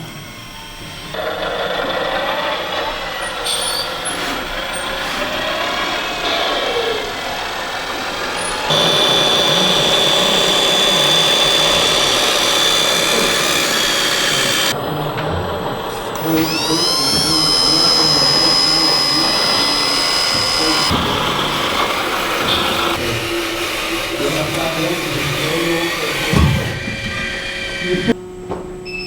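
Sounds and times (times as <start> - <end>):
model truck motors whining: 0.0 - 28.4
steady high whine: 7.0 - 28.2.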